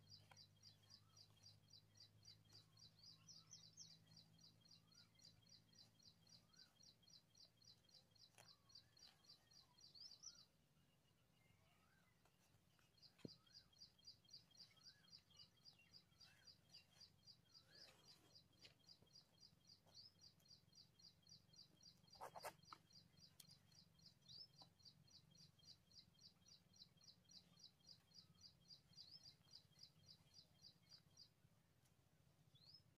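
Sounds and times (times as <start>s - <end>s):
high bird chirps: 13.0s - 31.3s.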